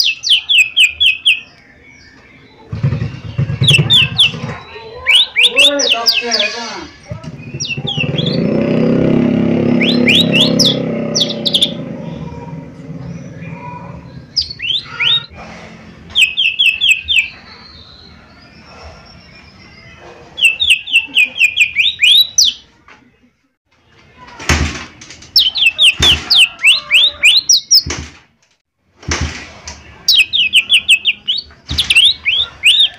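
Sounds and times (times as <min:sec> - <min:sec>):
bird chirping: 0:00.0 - 0:22.8, 0:25.3 - 0:28.0, 0:29.8 - 0:32.9
loud low rumble: 0:07.3 - 0:16.4.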